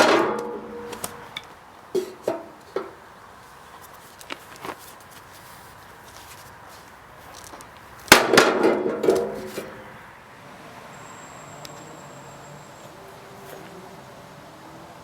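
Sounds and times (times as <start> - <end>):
sharp metallic clang: 0.0 - 2.9.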